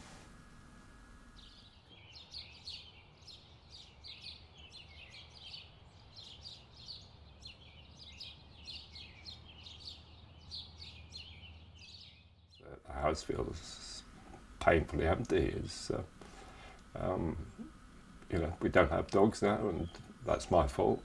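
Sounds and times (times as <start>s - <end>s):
low steady hum: 0.0s - 21.0s
faint birds chirping: 0.4s - 21.0s.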